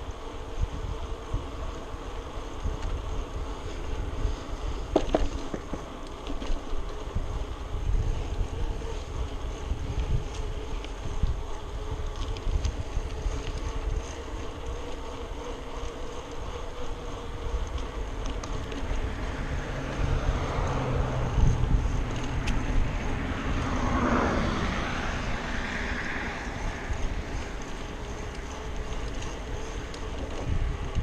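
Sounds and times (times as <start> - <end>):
wind rumbling on microphone: 0.0 - 31.0
motor vehicle passing: 6.8 - 30.2.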